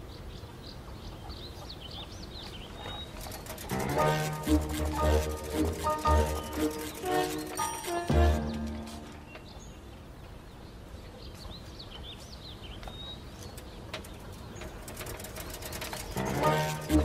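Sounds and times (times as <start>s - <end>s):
birds chirping: 0.0s - 17.0s
music: 3.7s - 9.3s, 16.1s - 17.0s.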